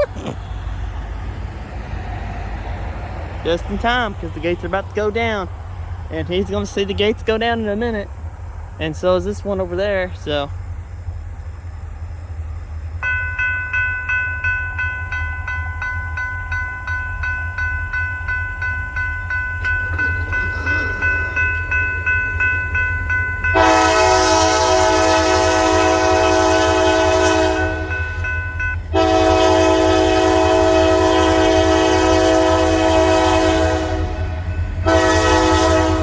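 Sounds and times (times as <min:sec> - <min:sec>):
crossing warning bell ringing: 0:03.4 - 0:05.5, 0:13.0 - 0:36.0
locomotive horn blasts: 0:23.4 - 0:36.0.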